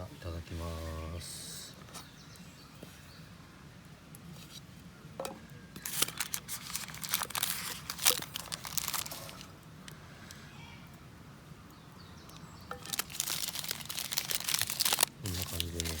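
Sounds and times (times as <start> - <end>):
plastic cling wrap crinkling: 5.8 - 10.0, 12.7 - 16.0.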